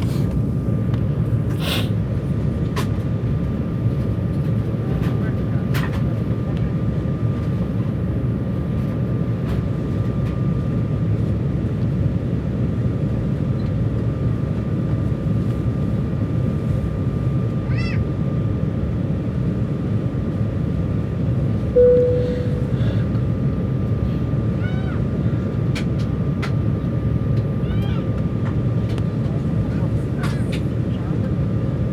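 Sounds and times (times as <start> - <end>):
airliner cabin noise: 21.4 - 23.9, 25.0 - 31.9
single chime: 21.8 - 23.0
faint steady whine: 21.8 - 23.2.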